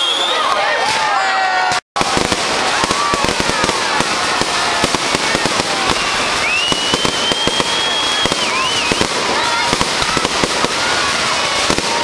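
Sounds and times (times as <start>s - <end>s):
high rising whistle: 0.0s - 0.5s, 6.4s - 9.0s
fireworks crackling bangs: 0.8s - 12.0s.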